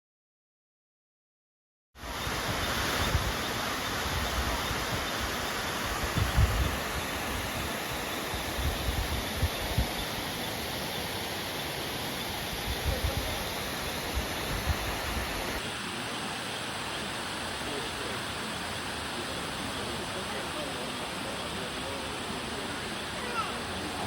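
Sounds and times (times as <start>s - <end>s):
waterfall rushing: 2.0s - 24.0s
wind thumps on microphone: 6.0s - 6.8s.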